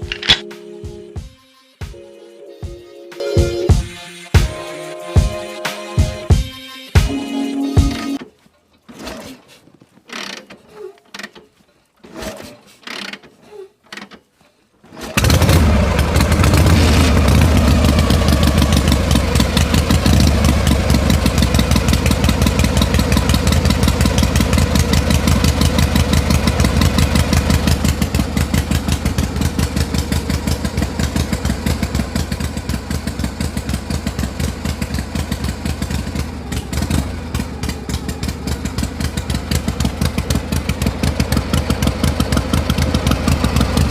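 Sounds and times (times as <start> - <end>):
small engine puttering: 0.0 - 0.5, 8.2 - 43.9
clicks and knocks: 0.0 - 0.6.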